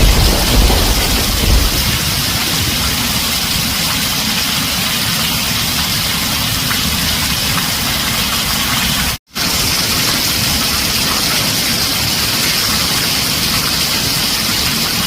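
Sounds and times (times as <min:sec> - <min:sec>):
thunder rumble: 0:00.0 - 0:04.5
heavy rain on a tin roof: 0:00.0 - 0:15.0.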